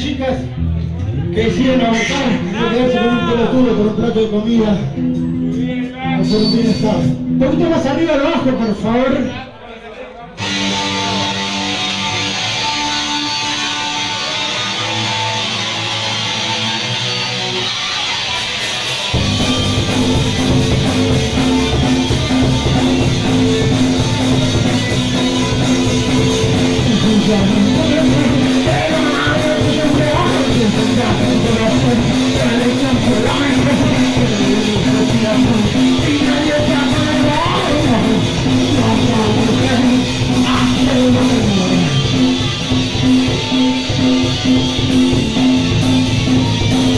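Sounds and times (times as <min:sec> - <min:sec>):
bass guitar: 0:00.0 - 0:09.4, 0:10.4 - 0:46.9
electric guitars: 0:10.4 - 0:46.9
drum beat: 0:18.5 - 0:46.9
person singing: 0:26.5 - 0:44.6.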